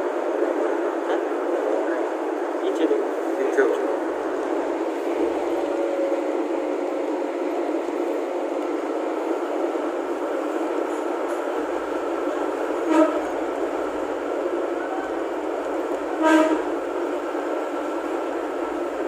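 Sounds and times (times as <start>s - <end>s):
train engine and wheels rumbling: 0.0s - 19.0s
train horn toot: 12.8s - 13.4s, 16.1s - 16.8s.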